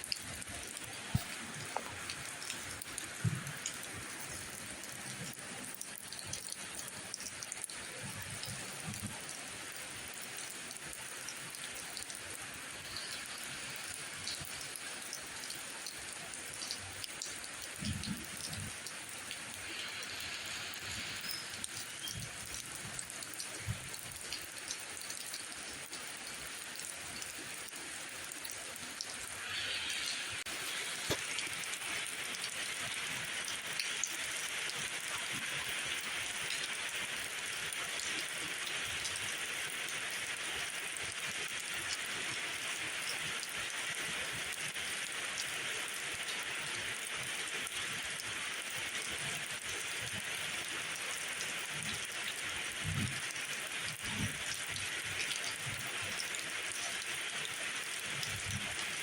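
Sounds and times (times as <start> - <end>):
steady rainfall: 0.0 - 59.0
faint drip ticks: 0.1 - 9.3, 12.8 - 20.0, 20.8 - 29.1.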